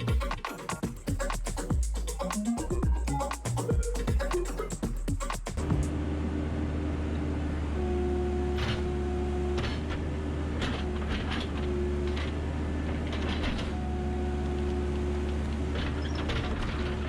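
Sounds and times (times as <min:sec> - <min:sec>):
engine whine: 0:05.5 - 0:17.0
backhoe engine rumbling: 0:06.1 - 0:17.0.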